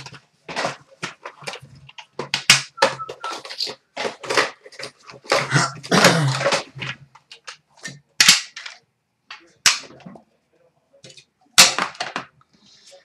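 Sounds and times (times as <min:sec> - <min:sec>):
card wrappers tearing: 0:00.0 - 0:06.7
cards rustling: 0:00.0 - 0:09.9.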